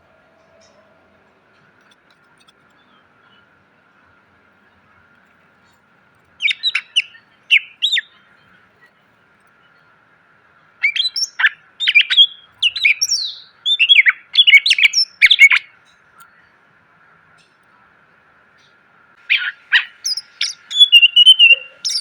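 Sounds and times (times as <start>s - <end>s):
bird singing whistles and chirps: 6.4s - 8.2s, 10.8s - 15.7s, 19.3s - 22.0s.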